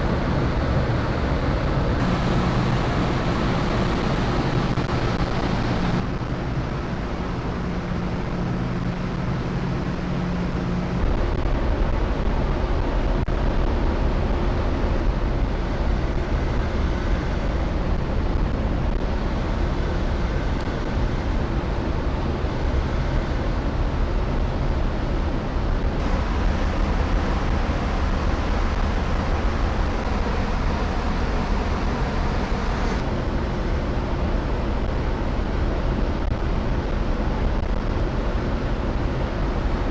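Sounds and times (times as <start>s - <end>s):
ferry engines droning: 0.0s - 11.2s, 26.0s - 38.0s
rushing wind: 0.0s - 21.8s, 23.8s - 39.9s
sea noise: 1.2s - 10.8s, 26.0s - 35.8s.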